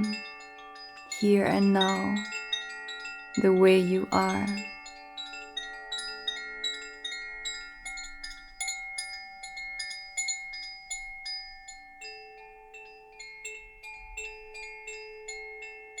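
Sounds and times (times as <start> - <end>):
chime music: 0.0 - 0.2, 1.1 - 2.4, 3.4 - 4.7.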